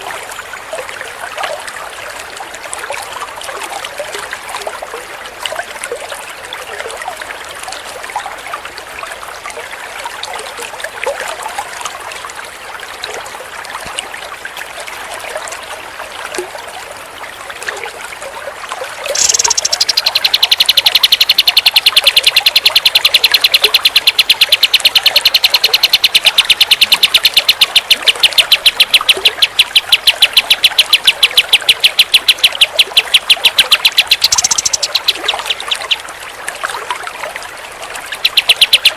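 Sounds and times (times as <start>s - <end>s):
running water trickling: 0.0s - 38.9s
songbird singing: 19.1s - 36.1s, 38.1s - 38.9s.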